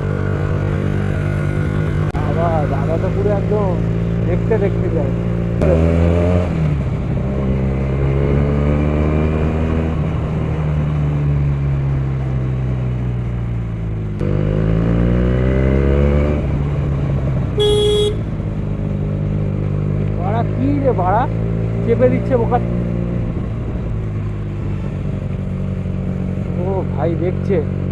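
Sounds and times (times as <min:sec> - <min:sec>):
motorcycle with loud exhaust: 0:00.0 - 0:12.5, 0:13.3 - 0:27.9
vehicle horn beeping: 0:17.6 - 0:18.3.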